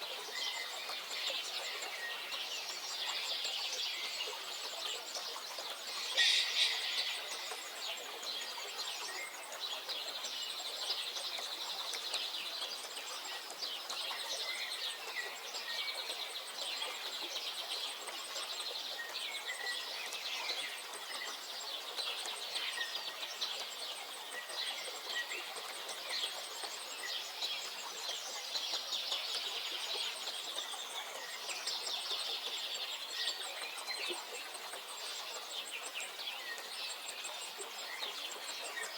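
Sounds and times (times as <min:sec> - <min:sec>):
birds chirping and trilling: 0:04.2 - 0:09.8.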